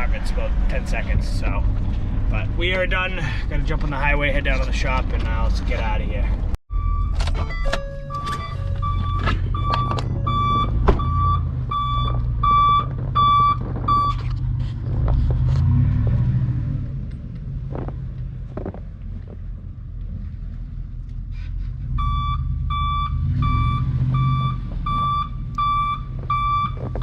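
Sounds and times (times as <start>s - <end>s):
vehicle backup alarm beeping: 6.7s - 14.4s, 21.9s - 27.0s.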